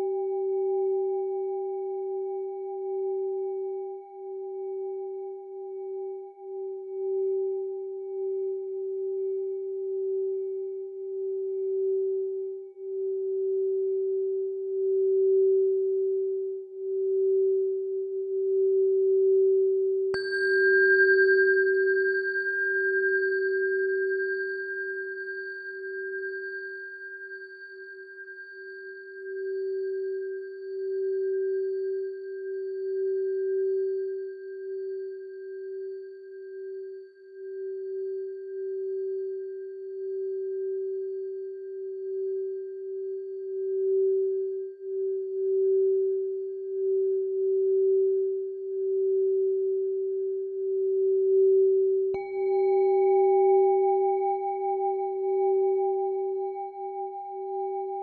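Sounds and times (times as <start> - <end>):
singing bowl ringing: 18.4 - 36.0, 50.7 - 58.0.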